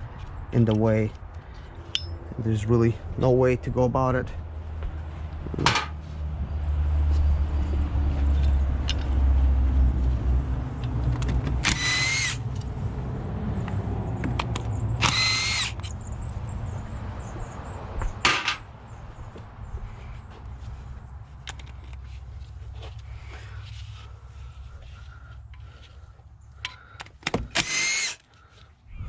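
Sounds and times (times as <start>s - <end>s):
small power tool whirring: 11.6s - 12.4s, 15.0s - 15.9s, 27.5s - 28.2s.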